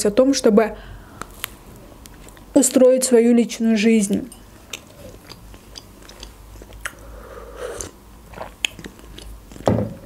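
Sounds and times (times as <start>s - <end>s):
person chewing: 4.5s - 9.7s
sharp mouth clicks: 4.7s - 7.1s, 7.7s - 9.4s.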